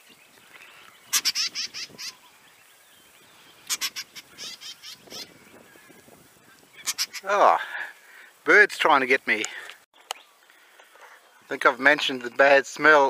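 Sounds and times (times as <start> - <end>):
birds harsh repeated calls: 0.0 - 8.4.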